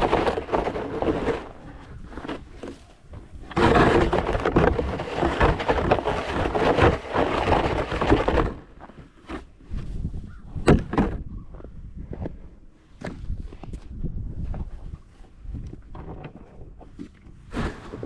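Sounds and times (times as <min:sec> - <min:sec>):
snow shovel scraping: 0:00.0 - 0:02.8, 0:03.5 - 0:08.6, 0:17.5 - 0:18.0.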